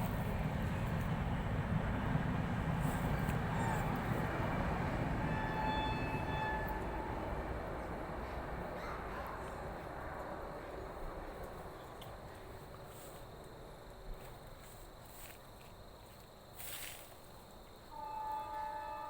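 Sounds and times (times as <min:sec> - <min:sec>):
horn-like tone: 0:05.2 - 0:07.2, 0:17.9 - 0:19.0.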